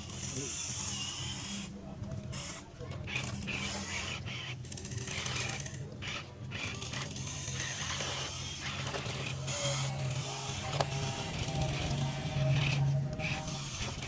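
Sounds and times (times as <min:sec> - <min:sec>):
electric motors humming: 0:00.0 - 0:14.0
rattling gear grinding: 0:04.7 - 0:14.0.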